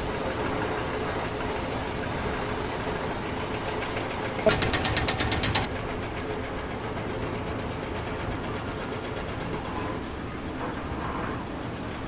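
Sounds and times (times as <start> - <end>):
fast rattle of clicks: 4.4 - 5.7.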